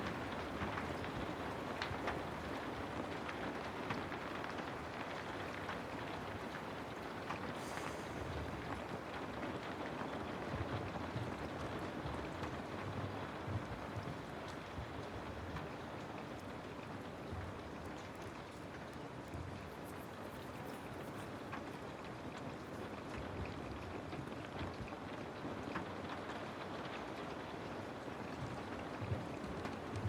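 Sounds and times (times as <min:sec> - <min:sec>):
raindrops ticking: 0:00.0 - 0:07.6
steady rain: 0:00.0 - 0:30.0.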